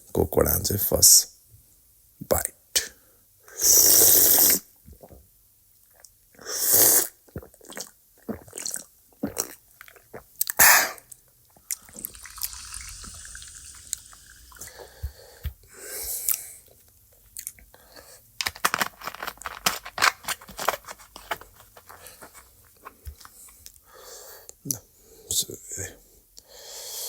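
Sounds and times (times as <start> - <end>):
fizzy drink hissing: 3.6 - 4.6, 11.7 - 15.1
swallowing: 4.8 - 5.3, 7.0 - 15.6.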